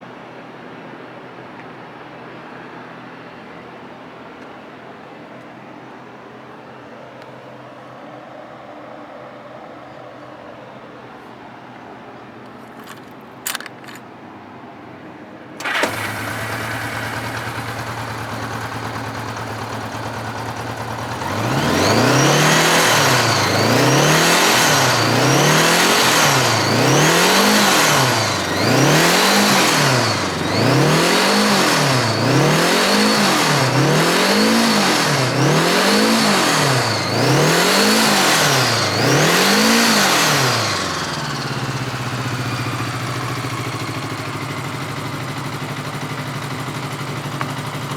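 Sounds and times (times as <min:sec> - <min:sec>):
clicks: 0:12.4 - 0:14.1
motorcycle engine idling and revving: 0:15.6 - 0:47.9.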